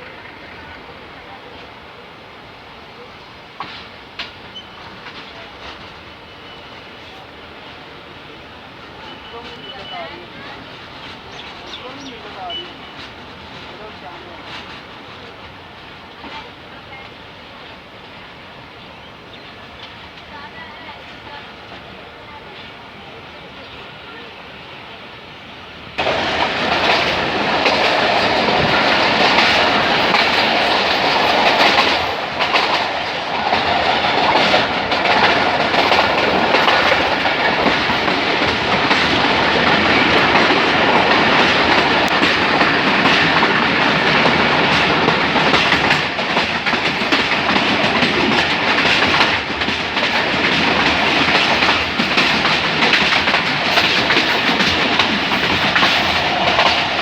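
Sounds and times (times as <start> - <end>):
train coaches rumbling past: 0.0 - 57.0
wheels clattering over rail joints: 26.0 - 57.0.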